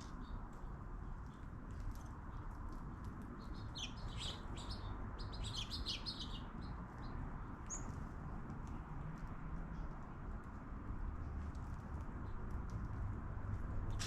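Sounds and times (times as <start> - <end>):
small birds chirping: 2.2 - 8.2.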